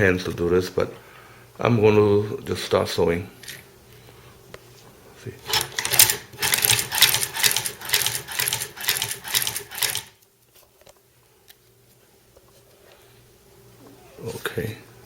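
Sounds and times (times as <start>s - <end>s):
sewing machine stitching leather: 5.5s - 10.2s.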